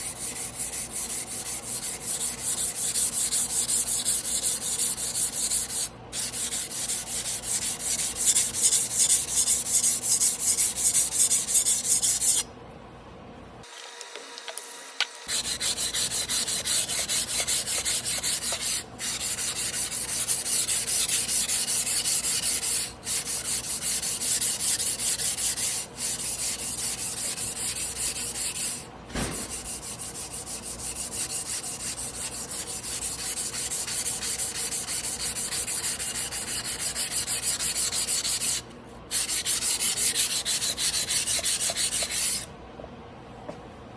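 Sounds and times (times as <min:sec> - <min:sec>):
knife scraping on whetstone: 0:15.3 - 0:42.4.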